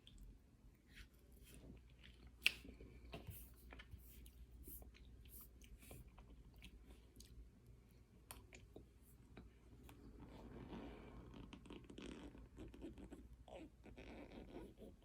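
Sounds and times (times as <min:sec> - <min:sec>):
chewing and crunching: 0:01.5 - 0:10.1.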